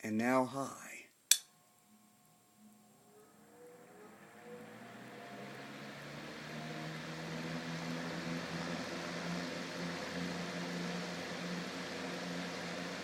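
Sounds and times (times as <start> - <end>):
table fan motor hum: 1.6 - 13.0
air rushing from fan blades: 4.1 - 13.0.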